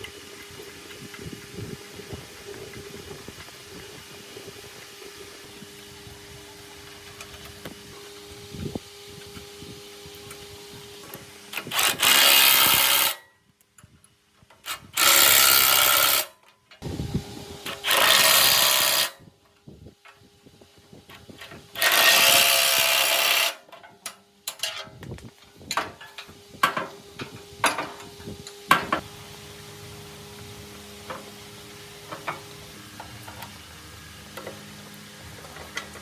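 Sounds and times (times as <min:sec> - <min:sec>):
power tool cutting wood: 0:06.9 - 0:13.2, 0:14.9 - 0:19.2, 0:21.7 - 0:23.7.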